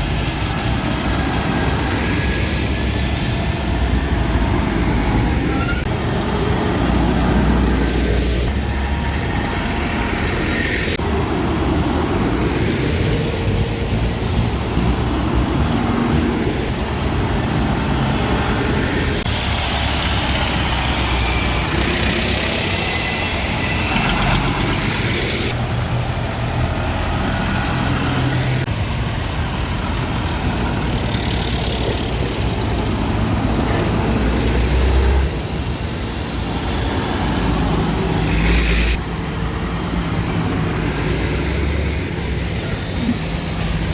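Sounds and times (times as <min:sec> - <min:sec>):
tractors driving past: 0:00.0 - 0:43.9.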